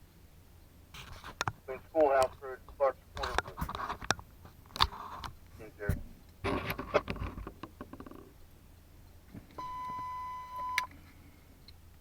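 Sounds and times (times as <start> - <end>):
radio scanner alert tone: 5.6 - 6.0
burst of radio noise: 5.6 - 6.1.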